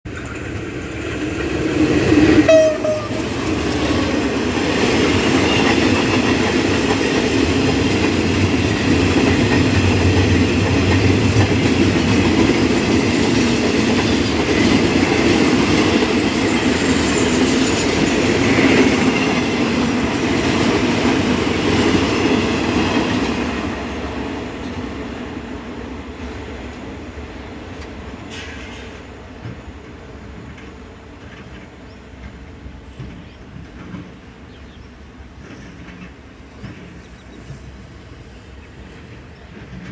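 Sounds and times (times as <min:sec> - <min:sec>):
freight train wheels clattering: 0:00.1 - 0:25.0, 0:28.2 - 0:38.2
train horn: 0:02.4 - 0:03.9.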